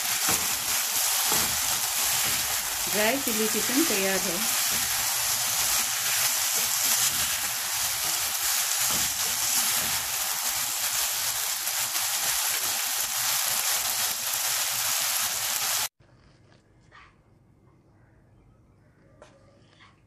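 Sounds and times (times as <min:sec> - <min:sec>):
food sizzling in a wok: 0:00.0 - 0:15.9.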